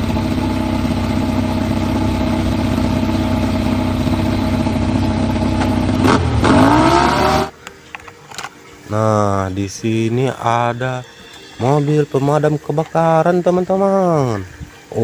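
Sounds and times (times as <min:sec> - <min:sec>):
motorcycle engine idling and revving: 0:00.0 - 0:07.6.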